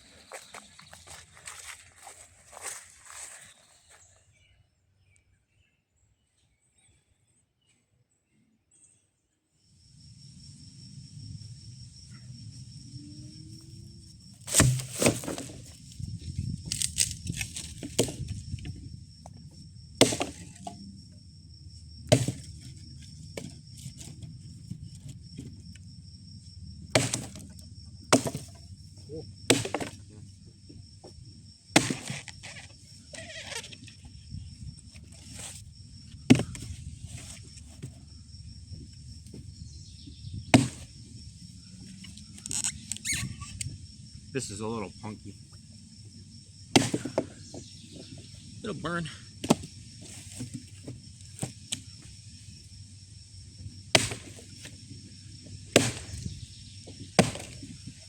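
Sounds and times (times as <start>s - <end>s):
insects droning: 0.0s - 6.0s, 9.2s - 58.0s
dry firewood cracking: 14.4s - 15.8s, 16.6s - 18.8s.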